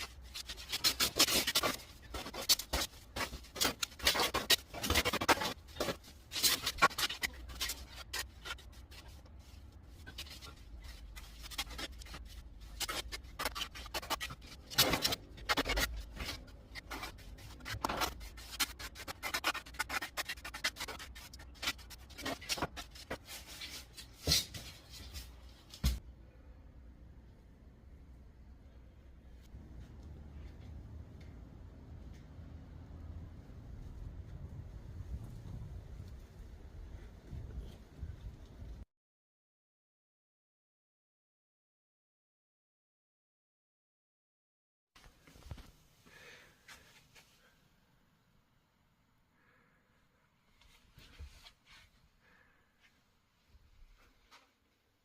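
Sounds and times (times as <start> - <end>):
trowel scraping mortar: 0.0 - 9.2, 10.0 - 23.2.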